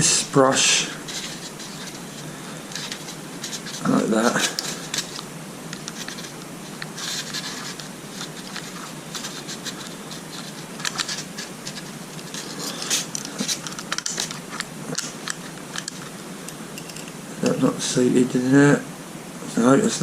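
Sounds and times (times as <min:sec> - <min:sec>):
faint steady hum: 0:00.0 - 0:20.0
small parts scratching and clicking: 0:01.1 - 0:16.1, 0:16.8 - 0:17.2.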